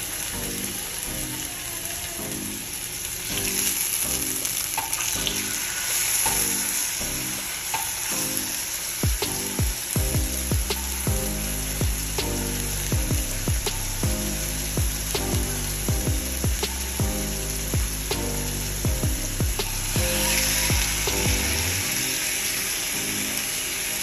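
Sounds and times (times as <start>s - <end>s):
food sizzling in a pan: 0.0s - 10.0s, 19.8s - 24.0s
background music with bass drum: 6.2s - 22.1s.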